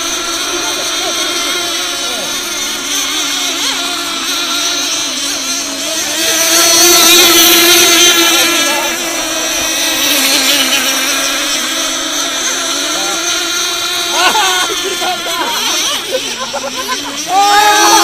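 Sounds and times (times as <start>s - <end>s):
racing boat outboard motors whining: 0.0s - 18.0s.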